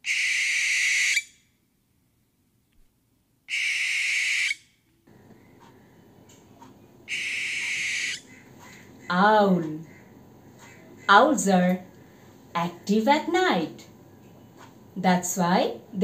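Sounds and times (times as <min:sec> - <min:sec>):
parrot screeching: 0:00.0 - 0:01.3, 0:03.5 - 0:04.6, 0:07.1 - 0:08.3.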